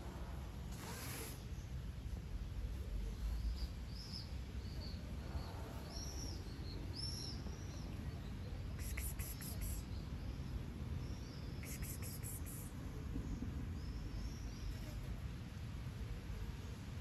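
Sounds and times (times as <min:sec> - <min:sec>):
small bird chirping: 0:03.2 - 0:12.8.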